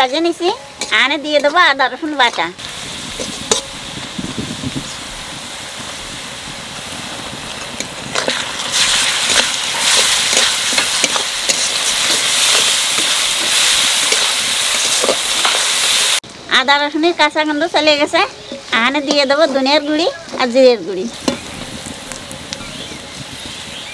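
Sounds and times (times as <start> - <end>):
onions sizzling in oil: 0.0 - 23.9
spatula scraping pan: 7.7 - 16.1.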